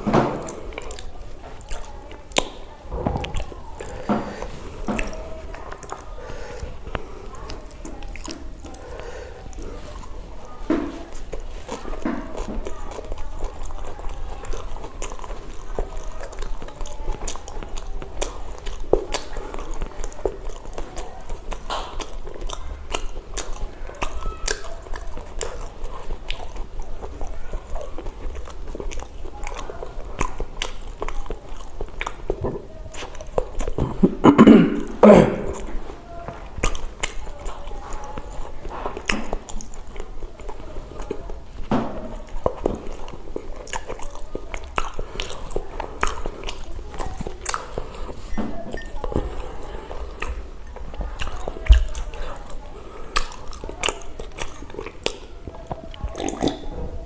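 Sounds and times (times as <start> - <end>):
mouth clicks: 0.0 - 57.0
person chewing: 0.0 - 57.0
low throat sound: 33.7 - 35.9.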